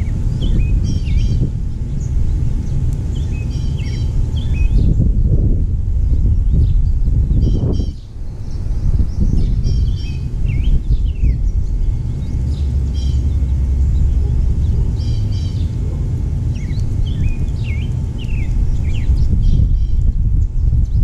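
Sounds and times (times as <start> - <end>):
small songbirds chirping: 0.0 - 21.0
steady low rumble: 0.0 - 21.0.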